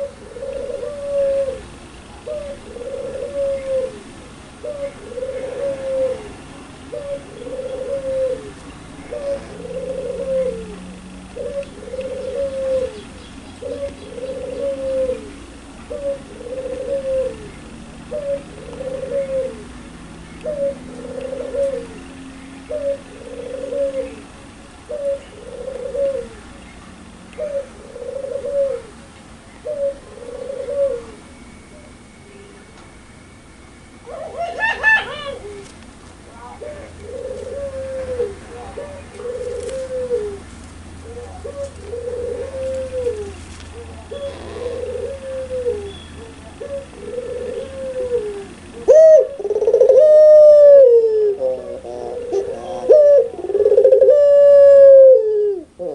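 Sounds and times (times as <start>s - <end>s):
dove cooing: 0.0s - 26.6s, 27.4s - 32.6s, 34.0s - 35.8s, 36.4s - 55.9s.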